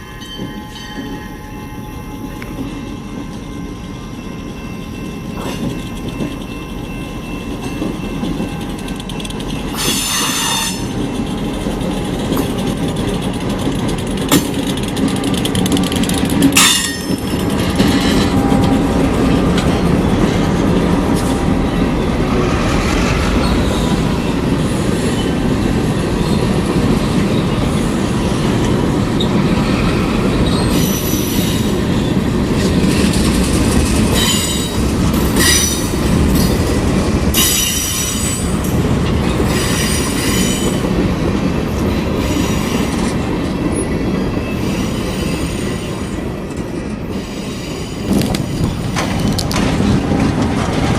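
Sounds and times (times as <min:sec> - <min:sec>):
diesel train rumbling past: 0:00.0 - 0:50.9
steel wheels squealing: 0:00.1 - 0:41.0, 0:41.7 - 0:50.3
rail joints clicking: 0:00.2 - 0:47.4, 0:48.0 - 0:50.9.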